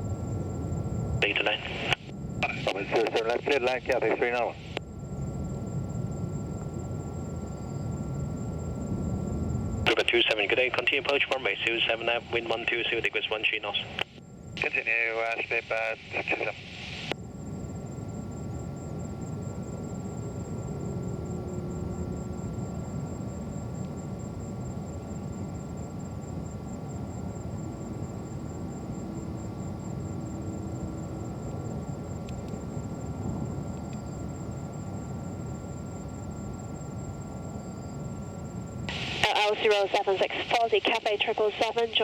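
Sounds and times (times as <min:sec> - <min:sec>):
faint high whine: 0:00.0 - 0:42.0.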